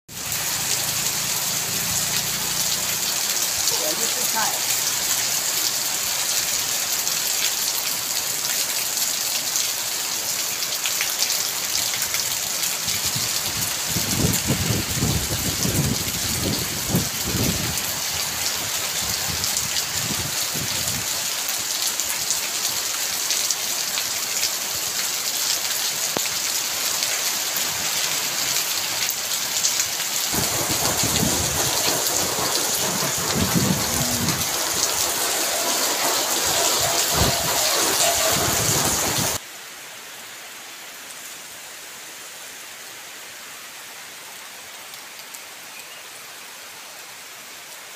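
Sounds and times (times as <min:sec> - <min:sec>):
heavy rain: 0:00.1 - 0:47.9
low rumbling: 0:30.3 - 0:39.4.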